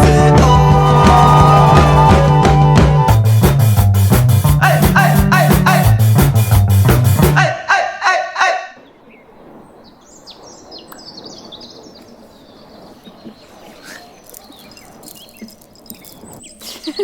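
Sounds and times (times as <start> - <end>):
outdoor ambience: 0.5 - 3.9, 7.4 - 17.0
birds chirping: 8.8 - 17.0.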